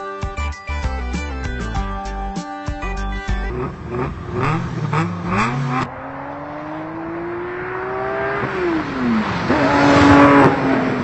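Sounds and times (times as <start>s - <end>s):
car engine accelerating: 3.3s - 11.0s.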